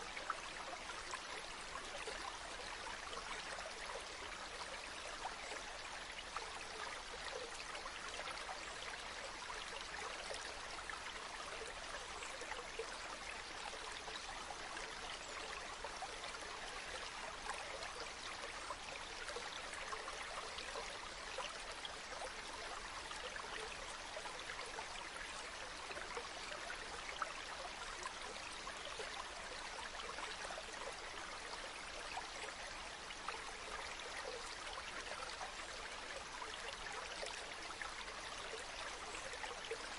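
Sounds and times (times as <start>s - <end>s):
stream flowing: 0.0s - 39.9s
water splashes and trickles: 0.0s - 39.9s.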